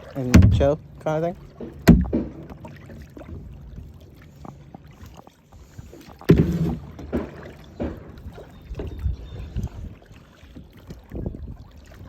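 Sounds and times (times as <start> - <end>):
kayak knocks: 0.0 - 4.0, 6.1 - 9.7
water sloshing from paddling: 0.0 - 12.0.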